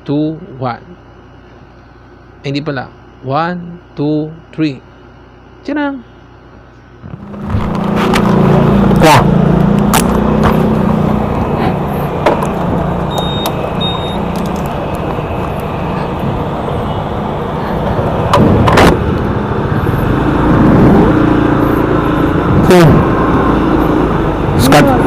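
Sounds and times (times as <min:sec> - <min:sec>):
motorcycle engine running: 0:07.0 - 0:25.0.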